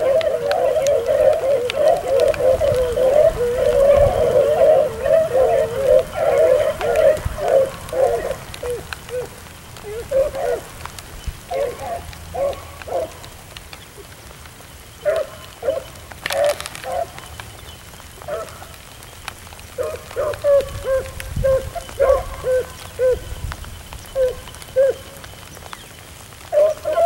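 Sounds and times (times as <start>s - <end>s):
dogs baying: 0.0s - 10.8s, 11.5s - 13.2s, 15.0s - 17.3s, 18.2s - 18.7s, 19.8s - 23.4s, 24.2s - 25.2s, 26.5s - 27.0s
rain pattering: 0.0s - 27.0s.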